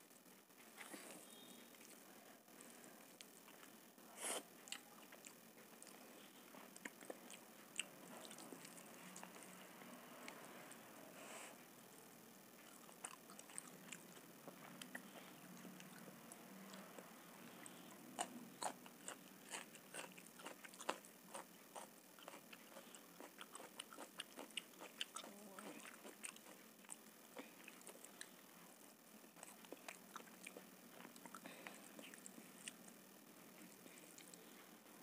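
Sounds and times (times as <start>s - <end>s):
soft chewing: 0.6s - 11.7s, 12.5s - 35.0s.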